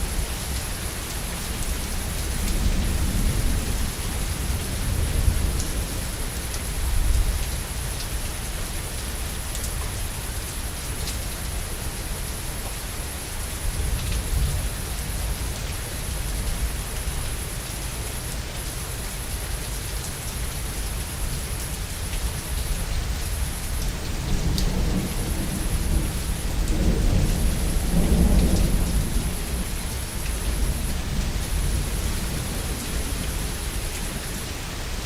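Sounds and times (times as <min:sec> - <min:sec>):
heavy rain falling: 0:00.0 - 0:35.0
thunder rumbling: 0:23.5 - 0:33.4.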